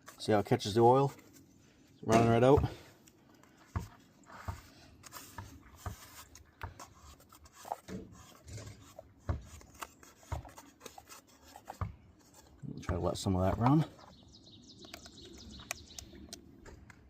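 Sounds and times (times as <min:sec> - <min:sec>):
hands rubbing and scraping filter: 0:03.4 - 0:12.6.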